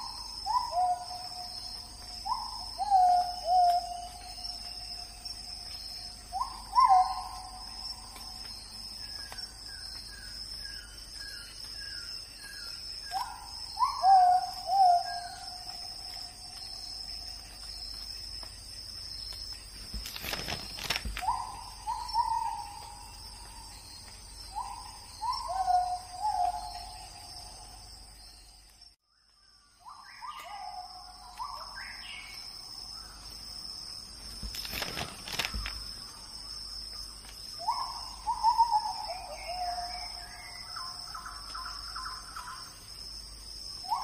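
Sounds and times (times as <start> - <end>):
high insect drone: 0.0 - 44.0
owl hooting: 6.3 - 7.6, 13.2 - 15.7, 24.5 - 27.0
crackling noise: 19.2 - 21.4, 34.2 - 36.1.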